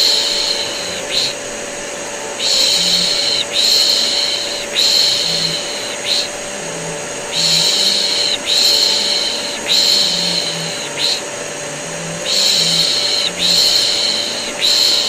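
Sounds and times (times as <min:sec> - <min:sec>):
vacuum cleaner drone: 0:00.0 - 0:15.0.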